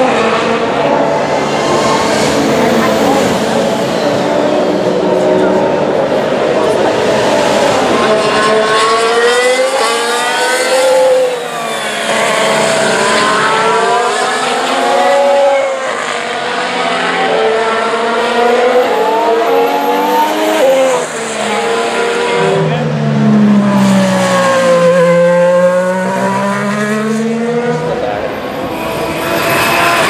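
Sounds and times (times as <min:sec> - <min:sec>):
racing car engines accelerating: 0:00.0 - 0:30.0.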